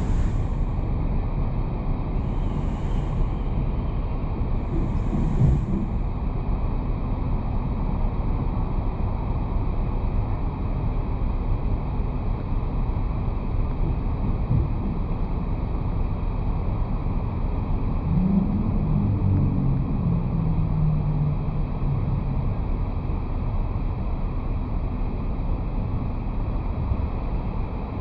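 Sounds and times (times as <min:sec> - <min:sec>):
wind rushing over camera: 0:00.0 - 0:07.8
road and tyre noise: 0:00.0 - 0:28.0.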